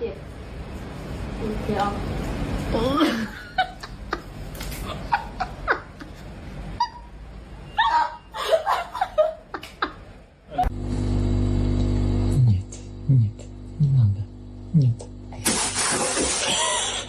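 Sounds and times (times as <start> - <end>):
people laughing: 3.0 - 7.0, 7.8 - 10.2.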